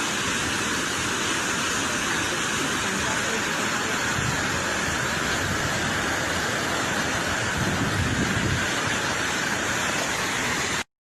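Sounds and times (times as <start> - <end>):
car road and wind noise: 7.4 - 8.7.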